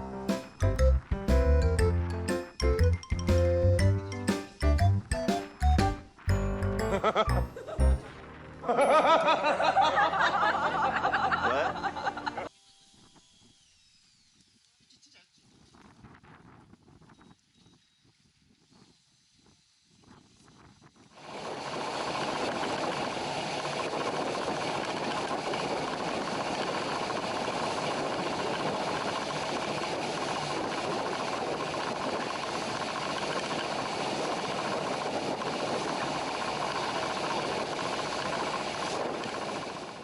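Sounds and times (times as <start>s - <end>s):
boat engine and rushing water: 21.2s - 40.0s.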